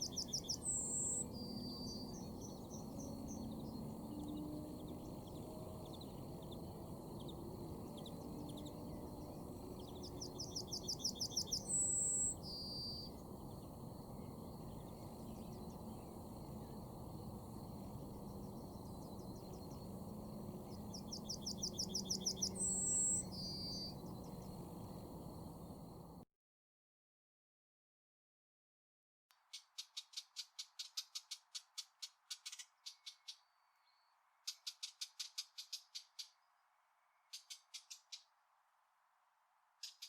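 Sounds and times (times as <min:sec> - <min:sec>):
low steady background noise: 0:00.0 - 0:26.2
songbird singing: 0:00.0 - 0:26.2, 0:29.5 - 0:38.4, 0:39.8 - 0:40.0.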